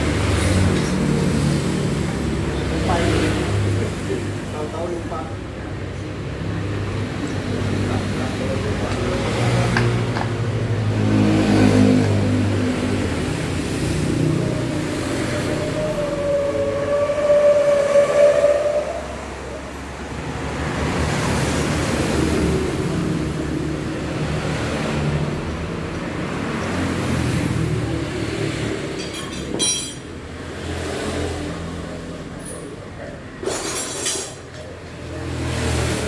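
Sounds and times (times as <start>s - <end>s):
road traffic rumbling: 0.0s - 36.0s
sharp metal clinks: 29.0s - 30.1s.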